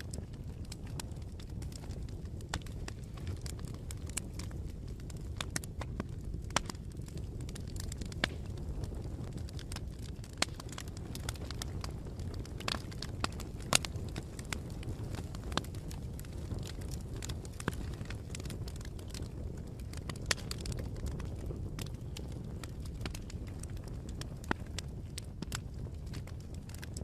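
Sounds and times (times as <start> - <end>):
campfire flames rumbling: 0.0 - 27.0
wood crackling and popping: 0.0 - 27.0.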